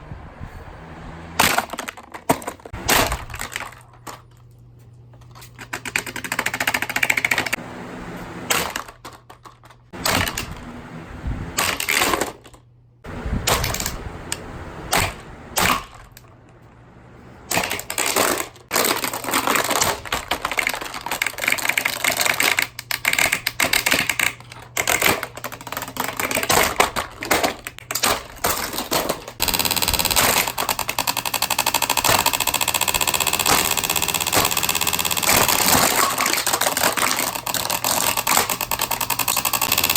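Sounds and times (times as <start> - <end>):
box fan being smashed apart: 1.4 - 4.3, 8.5 - 10.6, 11.6 - 12.6, 13.4 - 14.0, 14.9 - 16.2, 17.5 - 39.9
plastic cracking and clattering: 1.4 - 4.6, 8.5 - 10.6, 13.4 - 14.0, 17.5 - 39.9
dense steady rattle: 8.5 - 39.9.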